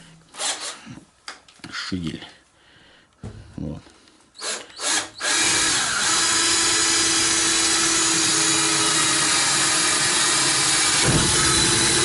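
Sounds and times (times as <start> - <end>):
power tool cutting wood: 4.4 - 12.0.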